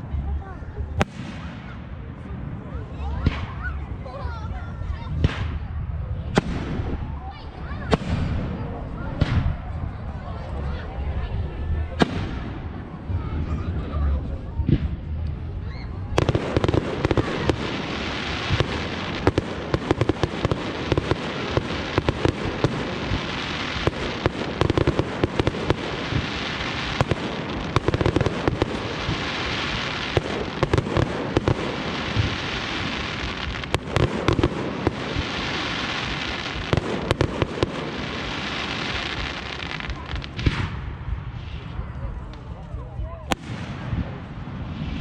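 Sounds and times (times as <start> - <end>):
fireworks crackling and hissing: 0.0 - 45.0
fireworks sharp bangs: 1.0 - 2.4, 5.2 - 9.8, 11.9 - 13.6, 16.1 - 41.8, 43.3 - 45.0.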